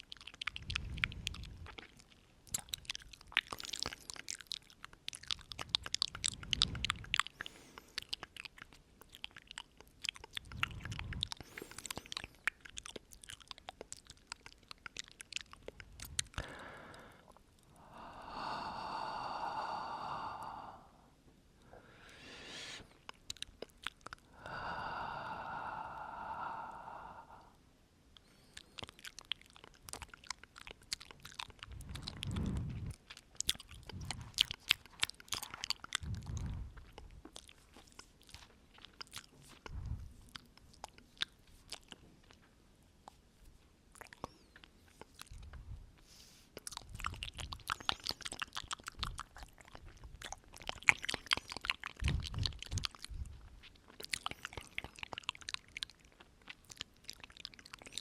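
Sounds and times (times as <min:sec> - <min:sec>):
mouth clicks and lip smacks: 0:00.0 - 0:21.0, 0:21.6 - 0:58.0
long breaths into microphone: 0:16.4 - 0:23.0, 0:24.3 - 0:27.6
breath puffs on microphone: 0:21.8 - 0:22.9, 0:31.7 - 0:33.0, 0:36.0 - 0:36.8, 0:39.7 - 0:40.1.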